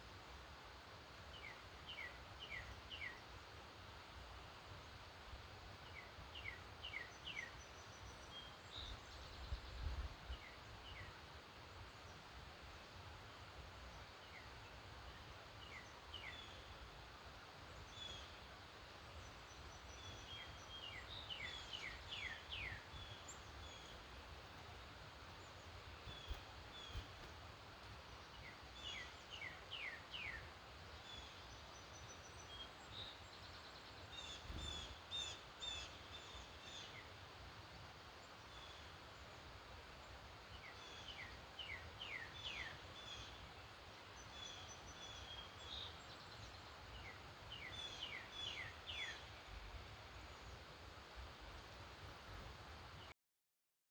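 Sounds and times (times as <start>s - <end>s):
songbirds singing: 5.8s - 12.2s, 13.8s - 37.3s, 37.9s - 53.1s.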